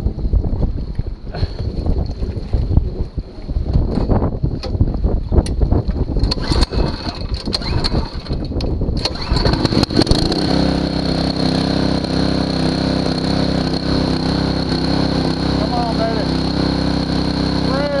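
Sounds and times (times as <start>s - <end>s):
water pump engine starting: 6.2s - 18.0s.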